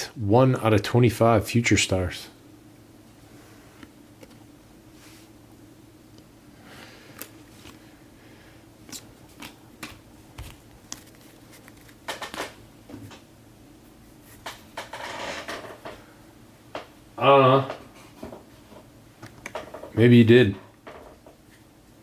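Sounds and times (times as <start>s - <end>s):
pack wrappers rustling: 8.9s - 12.5s.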